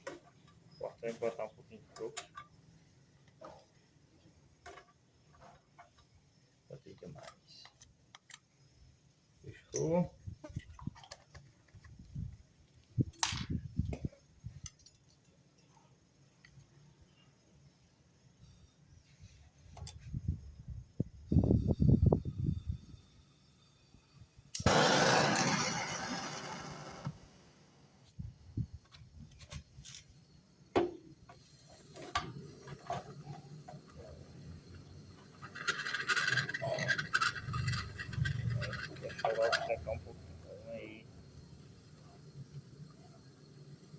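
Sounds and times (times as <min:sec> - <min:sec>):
tools and parts clicking: 0:02.0 - 0:02.6, 0:14.6 - 0:15.7, 0:35.3 - 0:39.8.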